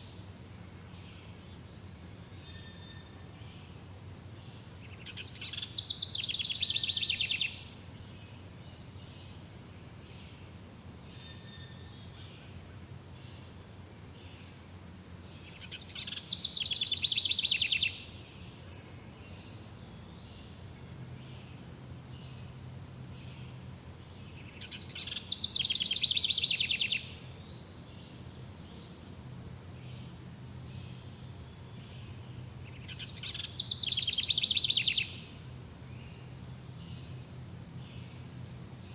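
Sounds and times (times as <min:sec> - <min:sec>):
faint bird chirps: 0:00.0 - 0:13.6, 0:15.3 - 0:23.6, 0:24.2 - 0:29.0, 0:29.8 - 0:38.9
outdoor background noise: 0:00.0 - 0:38.9
songbird trilled phrase: 0:24.6 - 0:27.2, 0:32.8 - 0:35.3.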